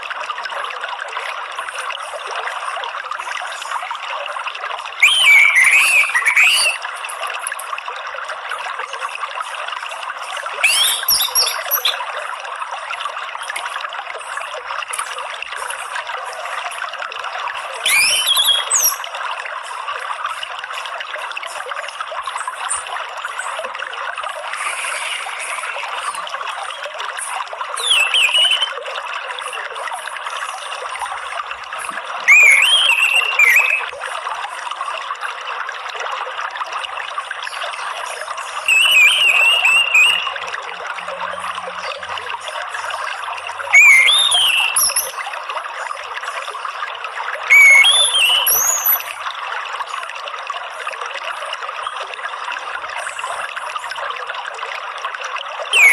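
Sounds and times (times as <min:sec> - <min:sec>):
water trickling: 0:00.0 - 0:55.9
thrush whistled song: 0:05.0 - 0:06.9, 0:10.5 - 0:12.1, 0:17.8 - 0:19.0, 0:24.5 - 0:26.9, 0:27.8 - 0:28.8, 0:32.2 - 0:33.9, 0:38.5 - 0:40.7, 0:41.8 - 0:45.3, 0:47.5 - 0:49.2.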